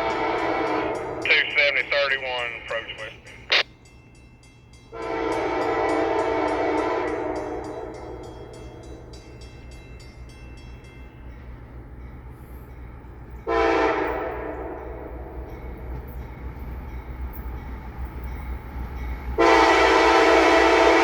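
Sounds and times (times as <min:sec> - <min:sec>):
locomotive air horn blasts: 0:00.0 - 0:01.7, 0:05.0 - 0:08.2, 0:13.5 - 0:15.2, 0:19.4 - 0:21.0.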